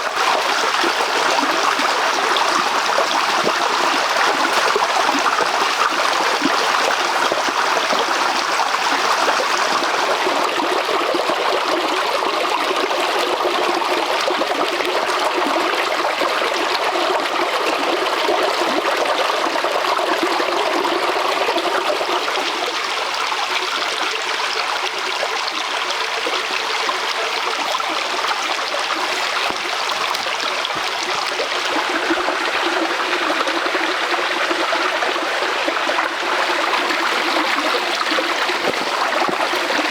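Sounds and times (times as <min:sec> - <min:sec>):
stream of water rushing: 0:00.0 - 0:10.8, 0:27.5 - 0:39.9.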